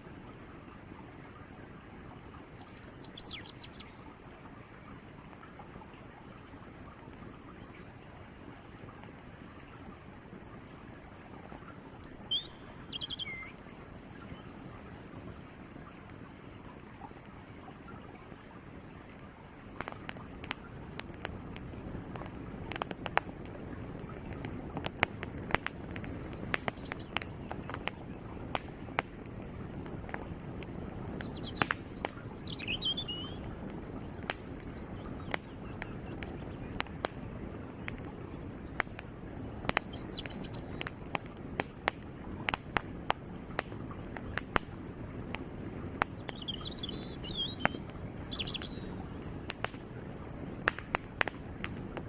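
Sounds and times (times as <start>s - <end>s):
campfire crackling and popping: 0.0s - 52.0s
creek flowing: 0.0s - 52.0s
high bird chirps: 2.5s - 4.1s, 11.6s - 15.0s, 25.8s - 27.2s, 31.1s - 33.4s, 38.7s - 40.9s, 46.2s - 49.1s.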